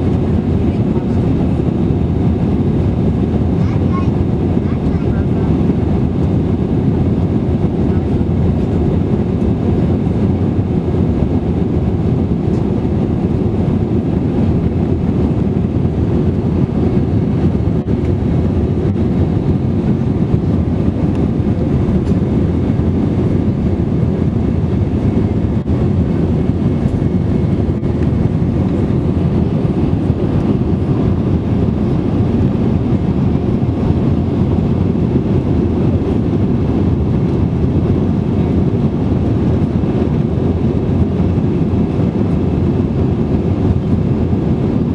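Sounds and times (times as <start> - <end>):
aircraft cabin engine and airflow noise: 0.0 - 44.9.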